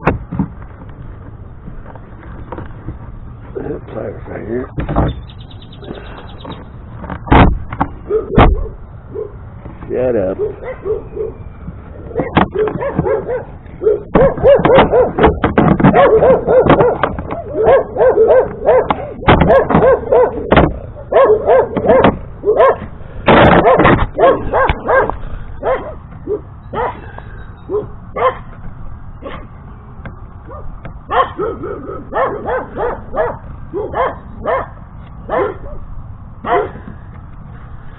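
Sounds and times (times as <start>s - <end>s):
dog barking and yipping: 8.0s - 9.4s, 10.2s - 28.5s, 29.2s - 29.5s, 30.5s - 35.8s, 36.4s - 36.8s.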